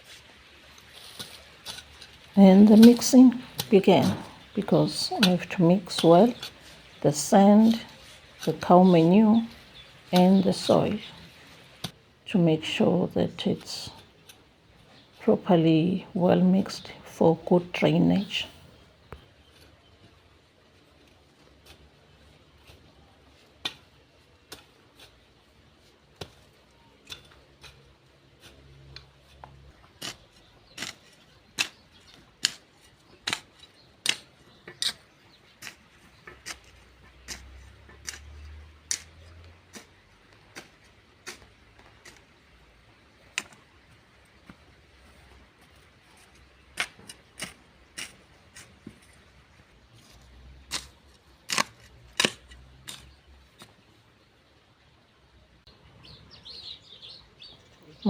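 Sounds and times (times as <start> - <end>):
garden tool striking soil: 0.0 - 12.0, 29.9 - 42.4, 45.6 - 49.4, 50.0 - 53.8.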